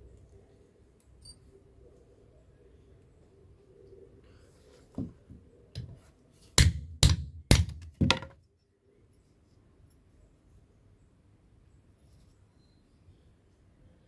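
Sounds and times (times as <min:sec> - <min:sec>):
hammer striking metal on anvil: 0:06.6 - 0:08.3.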